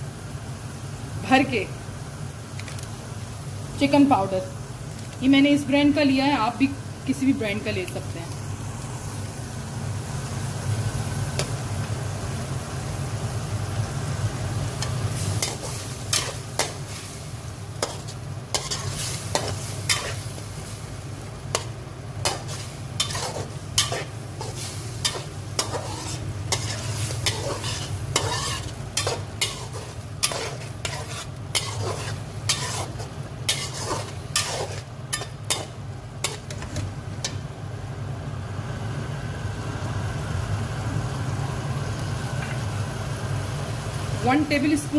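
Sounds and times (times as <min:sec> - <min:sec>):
food sizzling: 0:00.0 - 0:44.9
metal skimmer scraping metal pan: 0:22.3 - 0:35.7.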